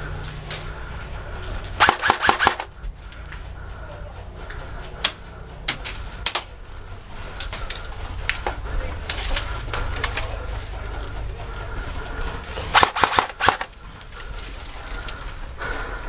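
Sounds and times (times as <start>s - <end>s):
airsoft gunshots: 1.8s - 2.7s, 12.7s - 13.7s.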